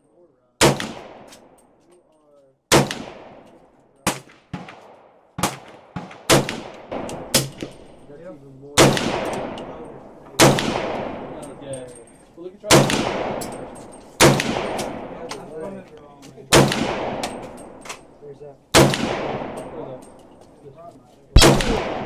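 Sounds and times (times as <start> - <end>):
echoing gunshots: 0.6 - 1.4, 2.7 - 3.5, 4.1 - 8.0, 8.8 - 11.6, 12.7 - 15.3, 16.5 - 17.8, 18.7 - 20.0, 21.4 - 22.0.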